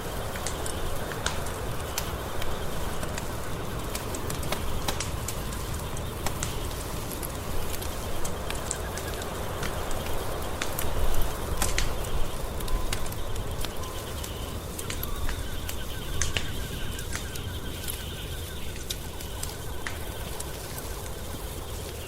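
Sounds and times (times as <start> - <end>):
wood fire crackling in fireplace: 0.0 - 22.0.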